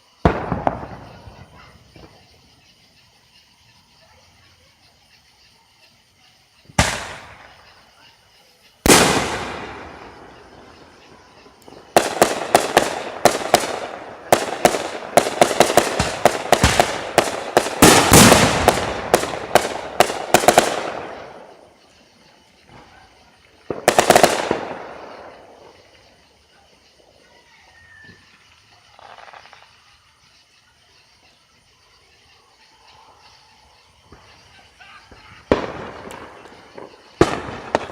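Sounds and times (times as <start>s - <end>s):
firework booms: 0.0s - 2.6s, 6.6s - 8.0s, 8.8s - 21.9s, 22.6s - 26.2s, 34.0s - 37.9s
rapid crackling firework reports: 0.0s - 2.7s, 6.6s - 27.2s, 34.0s - 37.9s.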